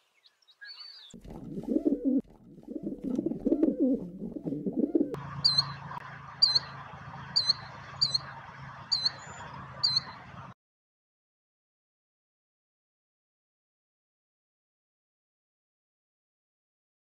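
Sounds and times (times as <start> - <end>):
pigeon cooing: 1.2 - 5.6
killdeer calling: 2.7 - 5.8, 6.4 - 10.3.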